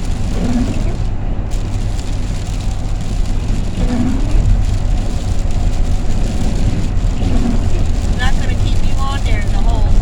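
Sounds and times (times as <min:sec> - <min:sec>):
rain hitting vehicle: 0:00.0 - 0:10.0
van engine and road rumble: 0:00.0 - 0:10.0.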